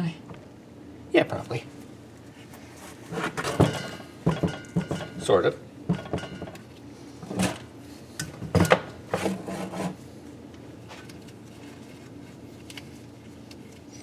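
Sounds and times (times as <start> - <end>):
metal scraping against metal: 9.1 - 10.0.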